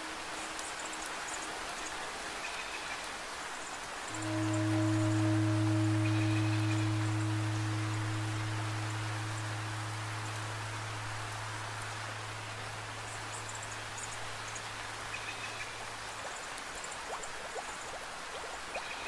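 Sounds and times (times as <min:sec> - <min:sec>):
steady rainfall: 0:00.0 - 0:19.0
singing bowl drone: 0:04.1 - 0:15.6.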